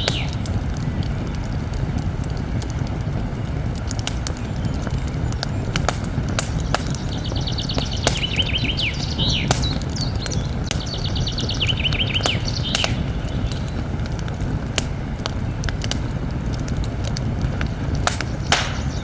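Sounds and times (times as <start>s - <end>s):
songbird singing: 0.0s - 1.6s, 4.2s - 16.2s, 17.7s - 19.0s
campfire crackling and popping: 0.0s - 19.0s.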